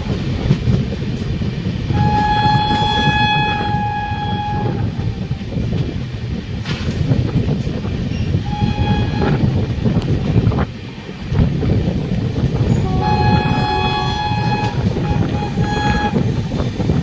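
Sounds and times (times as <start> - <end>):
train rumbling on track: 0.0 - 17.0
locomotive horn blast: 1.9 - 5.7, 8.4 - 10.1, 12.7 - 16.6.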